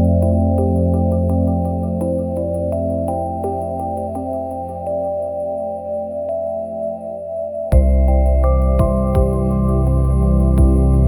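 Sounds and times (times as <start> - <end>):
ambient relaxation music: 0.0 - 11.0
deep low drone: 7.8 - 11.0.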